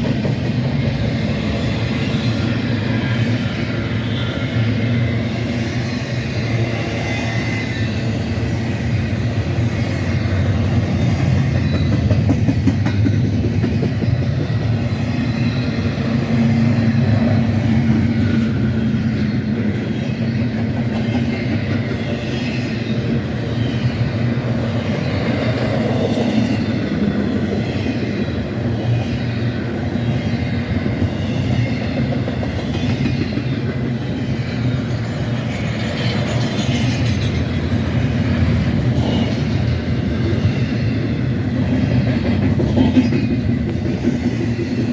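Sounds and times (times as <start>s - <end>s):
freight train rumbling on rails: 0.0s - 44.9s
train wheels clickety-clack: 0.0s - 44.9s.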